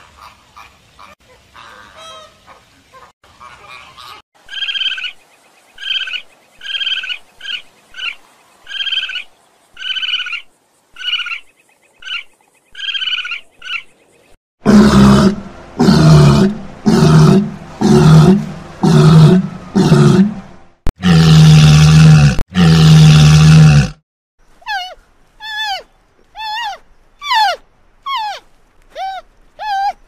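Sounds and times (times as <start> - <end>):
walrus grunting bellows: 14.6 - 24.0.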